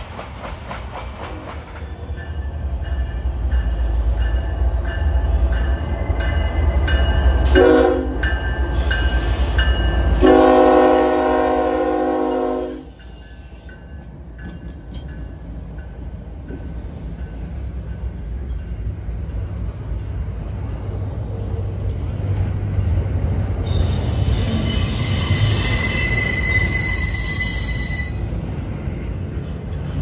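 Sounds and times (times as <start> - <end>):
low rumble of passing train: 0.0 - 30.0
train horn chord: 7.4 - 8.2, 10.2 - 13.0
high-pitched wheel squeal: 23.6 - 28.4.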